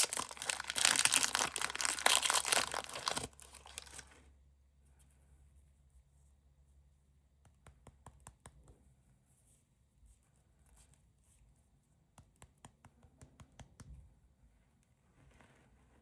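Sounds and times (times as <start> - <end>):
candy packaging clicks and taps: 0.0 - 4.0.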